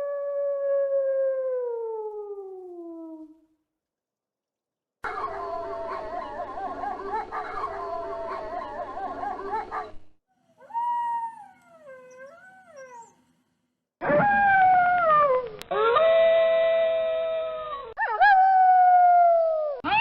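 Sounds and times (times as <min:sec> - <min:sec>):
wolves howling: 0:05.0 - 0:10.0.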